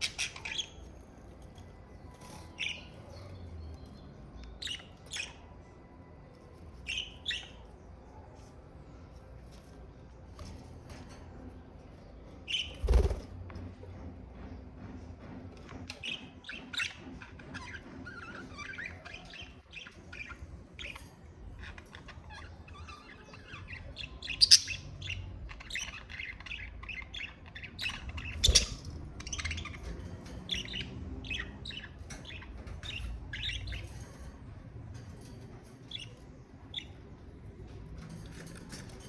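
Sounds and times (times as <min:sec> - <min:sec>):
budgerigars chirping and chattering: 0:00.0 - 0:05.6, 0:06.8 - 0:07.8, 0:12.4 - 0:13.3, 0:15.9 - 0:37.3.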